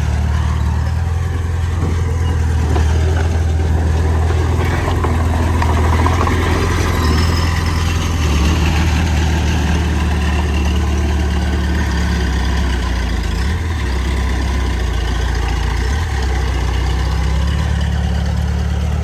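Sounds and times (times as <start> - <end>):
heavy diesel engine running: 0.0 - 19.0.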